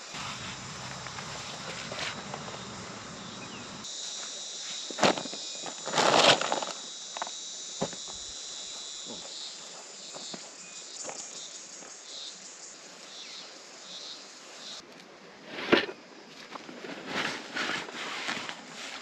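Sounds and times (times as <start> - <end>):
high-pitched insect drone: 0.0 - 14.8
low rumble: 0.1 - 3.8.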